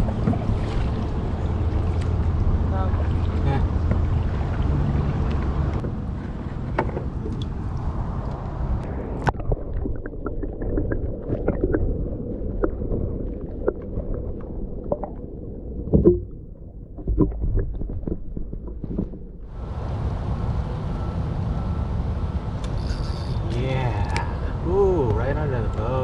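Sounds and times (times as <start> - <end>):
knocks and clicks from boat: 0.0 - 7.6
water lapping against canoe hull: 0.0 - 19.7.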